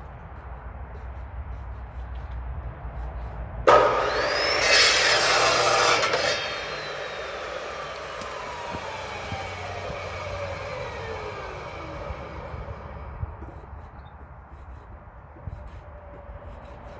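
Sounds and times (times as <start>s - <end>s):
power saw cutting log: 3.7s - 13.9s.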